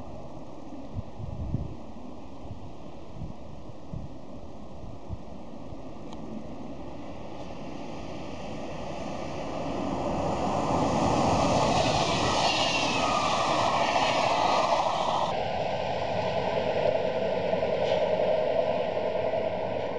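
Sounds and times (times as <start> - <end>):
train passing at speed: 6.5 - 19.9
wheels on rail rushing: 8.9 - 19.9.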